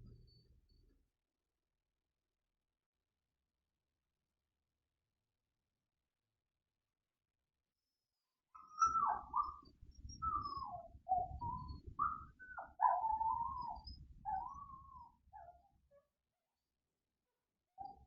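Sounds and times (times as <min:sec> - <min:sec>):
dog whining: 0:08.7 - 0:15.7.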